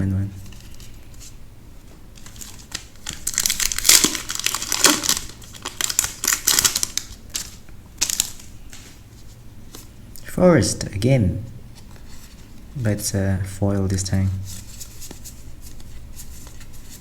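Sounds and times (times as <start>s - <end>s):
foil wrapper crinkling: 2.2s - 8.9s.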